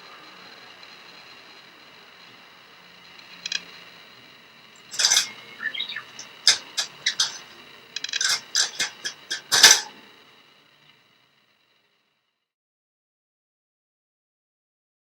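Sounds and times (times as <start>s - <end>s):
wire cage door clinking: 4.9s - 10.0s.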